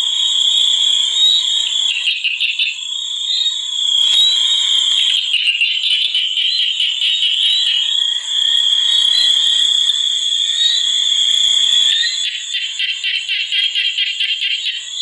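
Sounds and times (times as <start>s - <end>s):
chorus of animals trilling: 0.0s - 15.0s.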